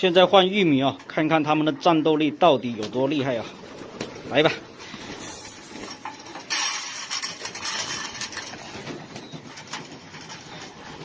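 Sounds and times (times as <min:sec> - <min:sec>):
pigeons pecking clicks: 0:02.8 - 0:11.0
pigeons cooing: 0:02.9 - 0:06.4, 0:07.2 - 0:11.0
corn kernels poured rattling: 0:05.2 - 0:08.9.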